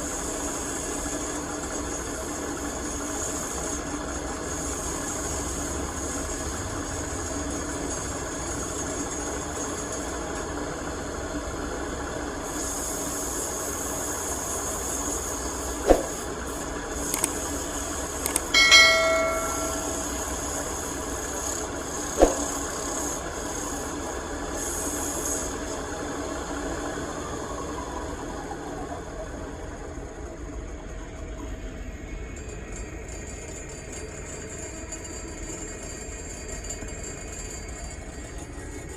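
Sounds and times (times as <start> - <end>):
sharp knocks: 15.9 - 16.2, 18.6 - 20.0, 22.2 - 22.5
ringing metallic clang: 18.6 - 20.3.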